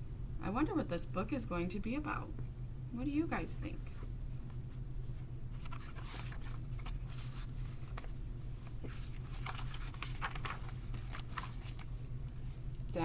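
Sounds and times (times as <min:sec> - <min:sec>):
low electrical hum: 0:00.0 - 0:13.0
book pages rustling: 0:04.7 - 0:12.6.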